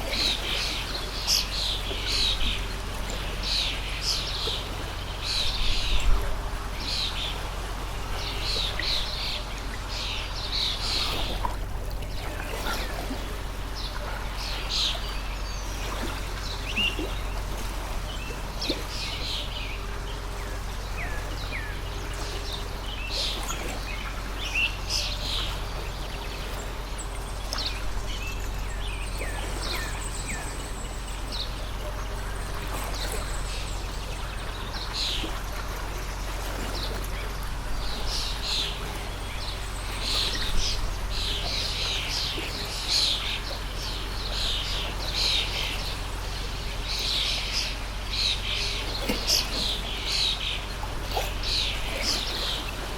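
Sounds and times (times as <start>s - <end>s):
stream of running water: 0.0s - 52.9s
small birds chirping: 18.1s - 52.8s.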